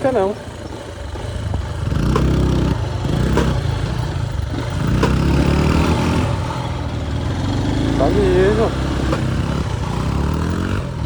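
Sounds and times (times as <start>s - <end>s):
motorcycle engine revving: 0.0s - 11.0s
sharp clicks: 0.6s - 6.0s.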